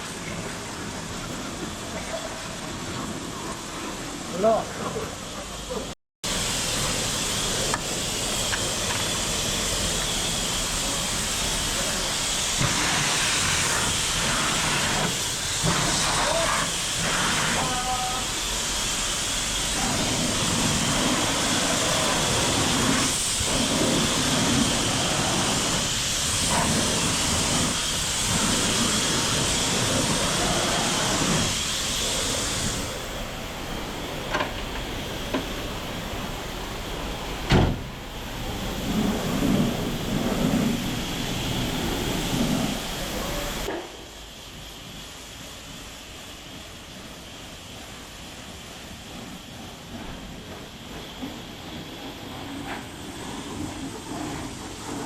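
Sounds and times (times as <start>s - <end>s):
pressure washer spraying water: 6.2s - 43.7s.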